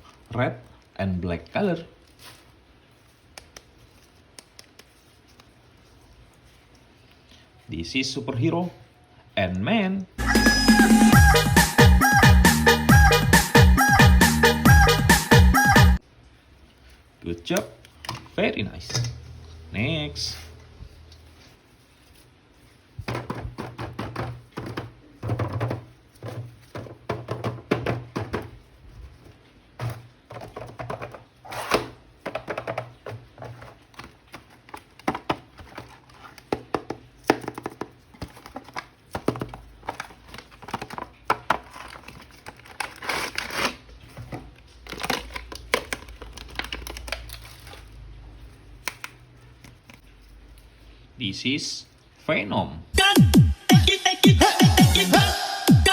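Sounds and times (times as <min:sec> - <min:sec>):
box thunks: 0:23.0 - 0:28.6
plastic packaging crinkling and tearing: 0:28.7 - 0:50.7.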